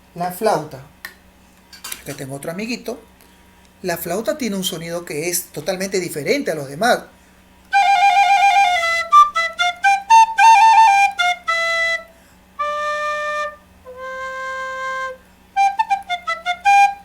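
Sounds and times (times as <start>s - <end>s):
flute playing: 7.7s - 17.0s.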